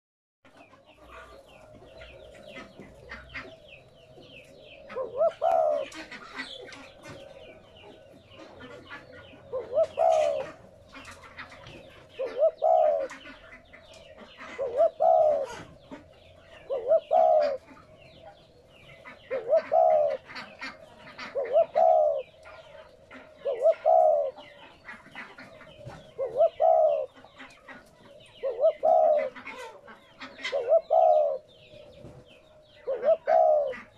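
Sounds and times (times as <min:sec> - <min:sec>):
dove cooing: 0:00.5 - 0:33.9.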